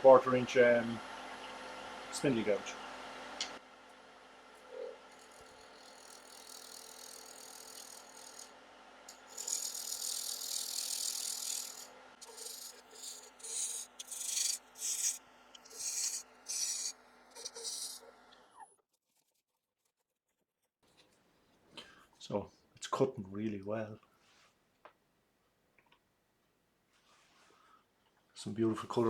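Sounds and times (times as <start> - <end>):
wood lathe motor hum: 4.6 - 18.5
gouge hissing cut: 5.2 - 8.5, 9.1 - 18.0
short scraping cuts: 9.1 - 18.2.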